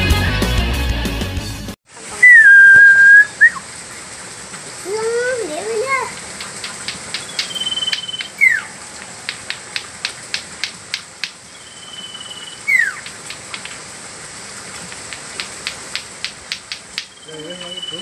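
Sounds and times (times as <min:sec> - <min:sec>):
bird whistle call: 0:02.2 - 0:03.6, 0:07.2 - 0:08.7, 0:11.5 - 0:13.1, 0:17.0 - 0:18.0
quick dry ticks: 0:06.1 - 0:08.4, 0:09.0 - 0:11.4, 0:13.0 - 0:13.8, 0:14.8 - 0:17.8.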